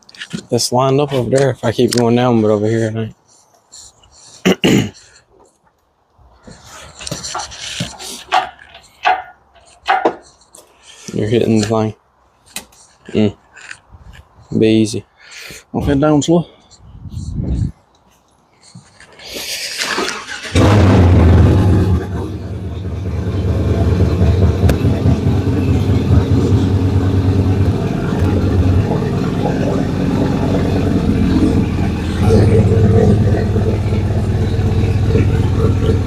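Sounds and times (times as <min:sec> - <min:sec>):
motor humming: 0:23.0 - 0:36.0.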